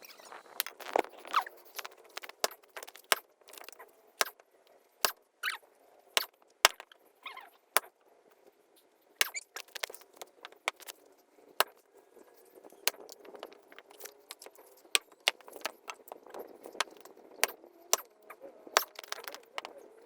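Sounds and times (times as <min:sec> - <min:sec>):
firewood knocking and clattering: 0:09.3 - 0:10.9, 0:12.9 - 0:18.1, 0:18.8 - 0:19.7.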